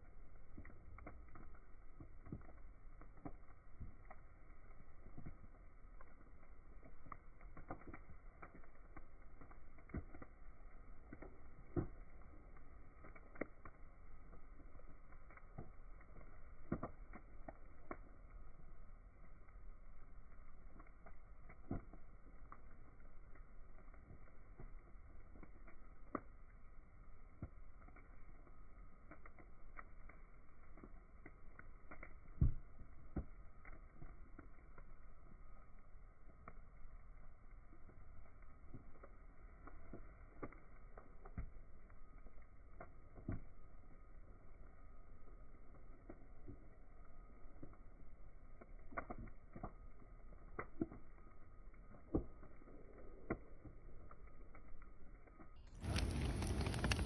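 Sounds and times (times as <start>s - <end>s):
bonfire crackling and popping: 0.0s - 57.0s
steady low hiss: 55.7s - 57.0s.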